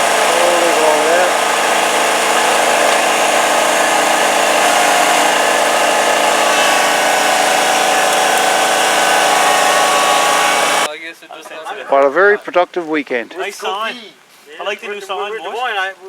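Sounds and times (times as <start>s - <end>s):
motor-driven machine running: 0.0s - 10.9s.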